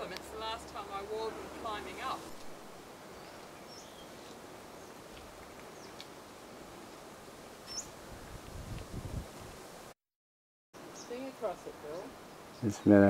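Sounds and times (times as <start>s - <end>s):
faint bush ambience hiss: 0.0s - 10.0s, 10.8s - 13.0s
small birds chirping: 3.0s - 8.4s, 10.8s - 13.0s.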